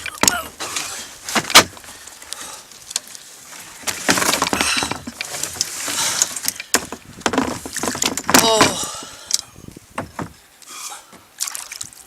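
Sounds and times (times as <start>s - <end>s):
fish thrashing: 0.0s - 10.4s
knocks against plastic kayak: 10.0s - 10.4s.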